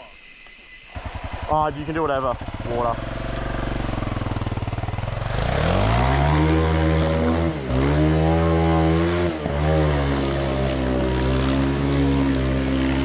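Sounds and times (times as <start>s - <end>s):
dirt bike engine revving: 1.0s - 13.0s.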